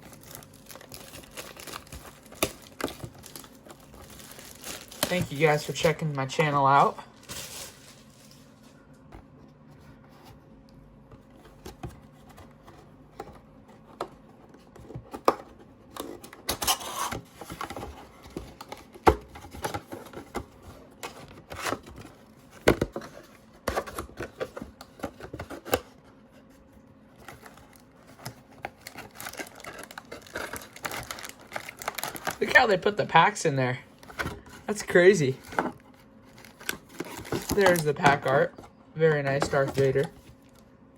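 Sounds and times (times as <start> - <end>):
plastic wrap rustling: 0.0 - 8.9, 27.1 - 38.6.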